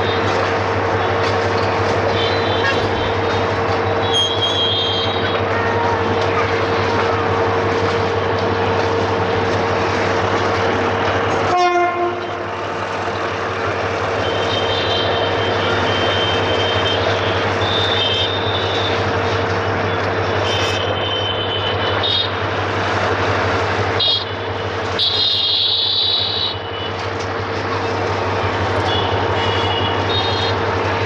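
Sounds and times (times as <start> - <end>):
freight train rumbling: 0.0 - 31.0
train horn toot: 2.0 - 3.3, 3.9 - 6.8, 11.4 - 12.6, 14.2 - 19.1, 20.4 - 22.4, 24.0 - 27.0, 28.8 - 30.8
high-pitched wheel squeal: 4.0 - 6.0.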